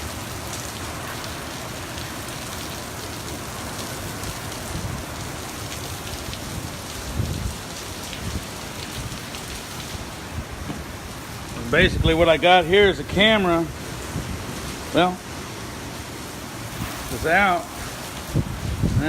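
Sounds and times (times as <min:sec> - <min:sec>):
heavy rain hissing: 0:00.0 - 0:19.0
dull low thumps: 0:10.3 - 0:12.1.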